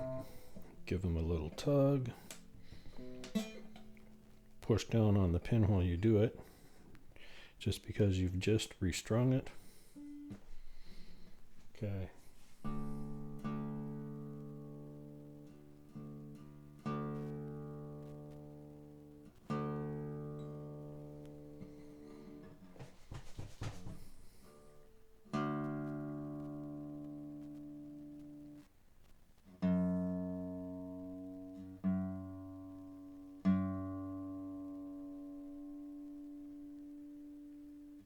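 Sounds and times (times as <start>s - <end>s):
guitar string plucked: 0.0s - 4.8s
guitar handling noise: 0.0s - 7.2s, 8.4s - 28.7s
acoustic guitar chord ringing: 0.0s - 7.5s, 9.1s - 11.4s, 12.2s - 22.7s, 24.3s - 28.6s, 29.6s - 38.0s.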